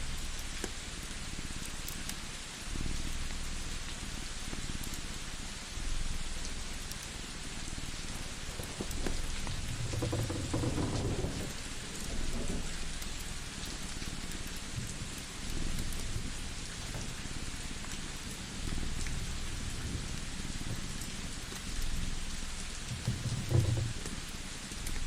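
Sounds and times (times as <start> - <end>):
rain hiss: 0.0 - 25.0
wood fire crackling: 6.3 - 25.0.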